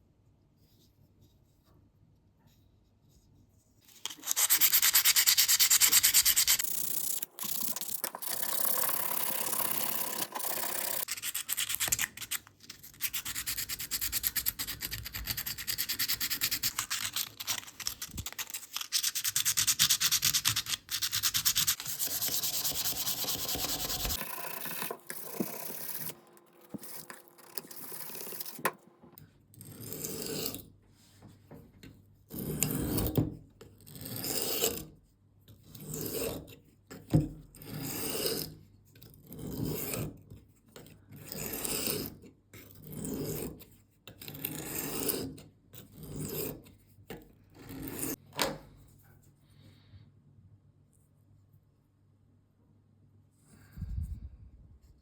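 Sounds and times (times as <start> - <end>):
abrasive sanding rubbing: 4.1 - 6.6, 11.0 - 24.2.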